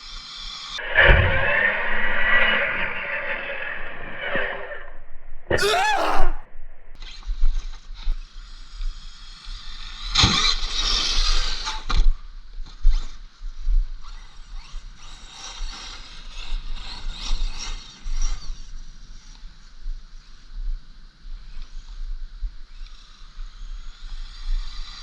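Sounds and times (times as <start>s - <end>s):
rc truck motor whining: 8.4s - 12.0s.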